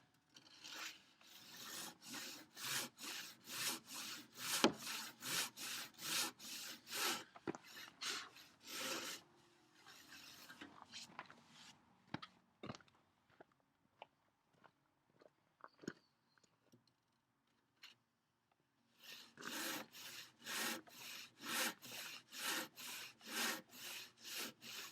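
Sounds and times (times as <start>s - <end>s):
hand saw cutting wood: 0.4s - 11.1s, 19.0s - 24.9s
faint scrapes: 6.2s - 11.8s.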